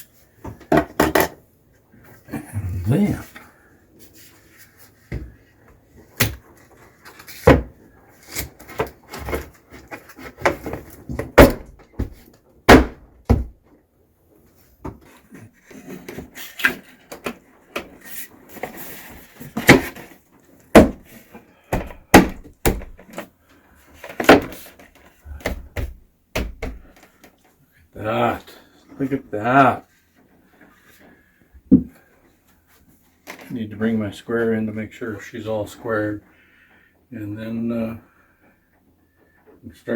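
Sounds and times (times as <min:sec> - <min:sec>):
wooden knocks and thuds: 0:10.4 - 0:13.6, 0:20.7 - 0:23.2, 0:25.3 - 0:27.0, 0:31.7 - 0:32.0.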